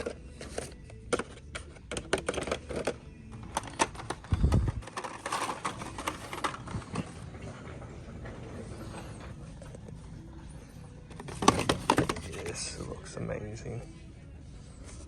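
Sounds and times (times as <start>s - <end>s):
packaged toy cars clacking: 0.0s - 8.9s, 11.1s - 12.6s.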